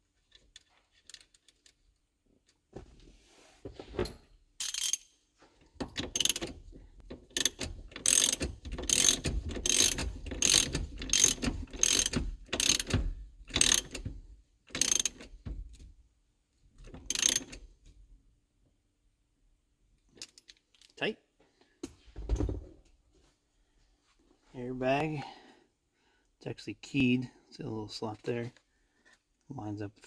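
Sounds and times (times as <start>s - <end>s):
ratchet pawl clicking: 4.6s - 5.0s, 6.1s - 6.5s, 7.3s - 14.0s, 14.7s - 15.2s, 17.1s - 17.5s.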